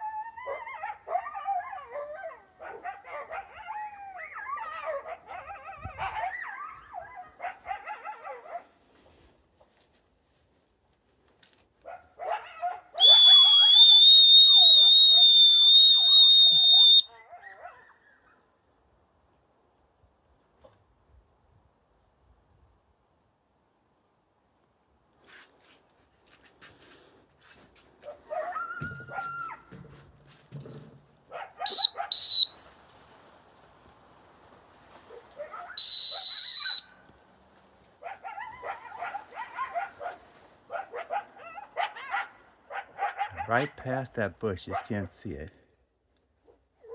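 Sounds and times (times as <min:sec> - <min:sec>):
coyotes yipping and howling: 0:00.0 - 0:08.6, 0:12.2 - 0:18.5, 0:28.1 - 0:29.7, 0:31.3 - 0:32.5, 0:38.0 - 0:43.5
dog whistle blast: 0:13.0 - 0:17.1, 0:31.7 - 0:32.6, 0:35.8 - 0:36.9.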